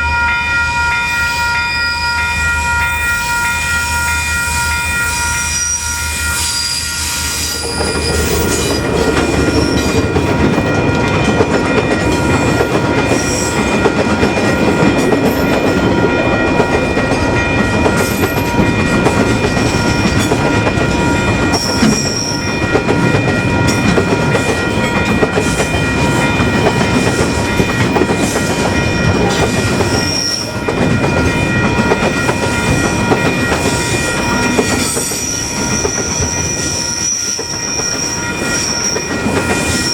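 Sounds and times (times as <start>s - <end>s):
level crossing bells ringing: 0.0s - 39.9s
train wheels clattering on rails: 6.7s - 39.9s.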